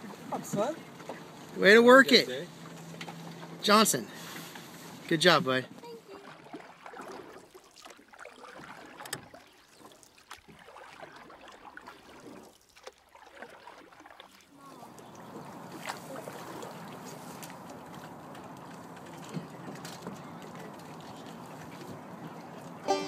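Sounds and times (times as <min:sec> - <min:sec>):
faint lapping water: 0:00.0 - 0:23.0.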